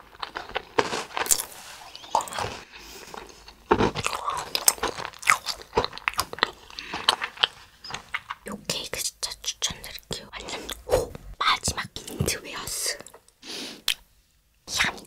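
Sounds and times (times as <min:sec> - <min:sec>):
crunchy snack chewing: 0:00.0 - 0:08.5.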